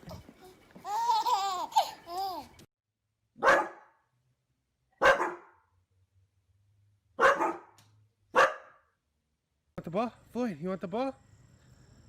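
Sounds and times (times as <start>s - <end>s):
dog barking: 3.4s - 4.0s, 5.0s - 5.6s, 7.2s - 8.9s.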